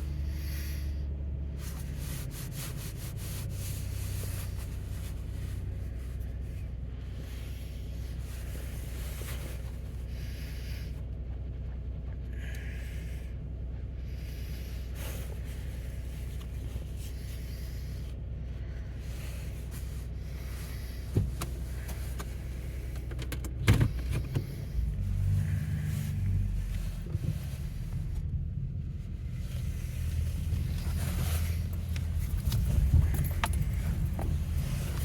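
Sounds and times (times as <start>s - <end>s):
truck engine idling: 0.0s - 35.0s
rustling: 24.5s - 35.0s.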